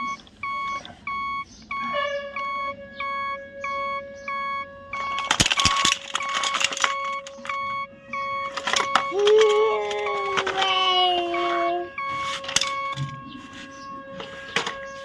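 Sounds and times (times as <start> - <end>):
short electronic beeps: 0.0 - 14.0
steady electronic tone: 0.0 - 15.0
clicking and clattering: 5.0 - 7.7, 8.3 - 13.2.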